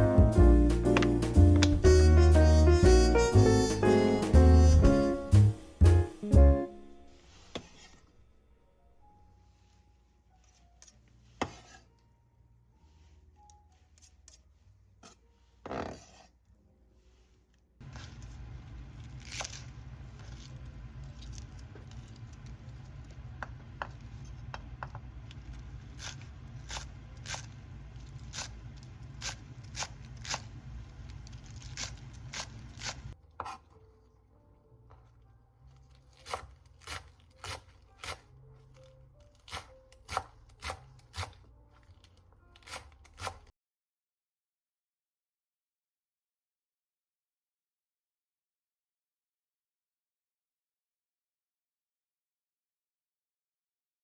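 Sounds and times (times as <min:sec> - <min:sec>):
knife chopping on cutting board: 0:31.7 - 0:33.6, 0:36.2 - 0:38.2, 0:39.5 - 0:41.4, 0:42.6 - 0:43.5.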